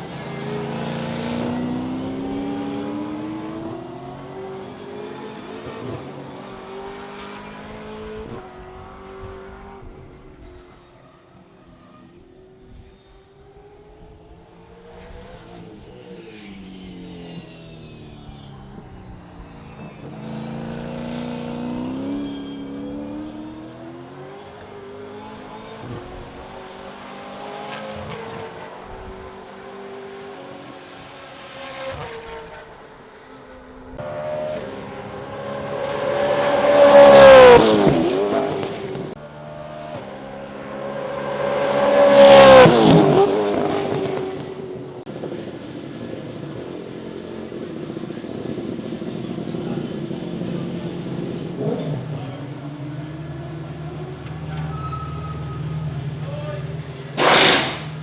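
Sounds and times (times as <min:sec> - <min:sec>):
race car passing at full throttle: 0:00.0 - 0:54.3
distant race car engines: 0:00.0 - 0:58.0.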